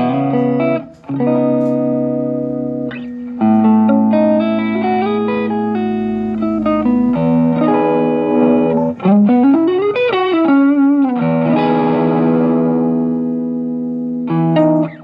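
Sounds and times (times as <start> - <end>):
electric guitar: 0.0 - 15.0.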